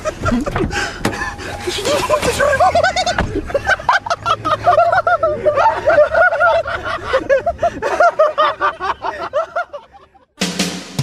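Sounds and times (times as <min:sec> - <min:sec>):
people laughing: 0:00.0 - 0:10.4
rock music with drums: 0:10.4 - 0:11.0.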